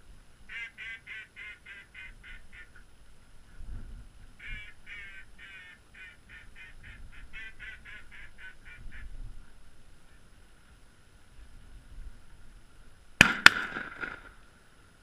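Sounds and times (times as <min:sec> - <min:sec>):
waterfowl raspy calls: 0:00.5 - 0:02.9, 0:04.4 - 0:09.2.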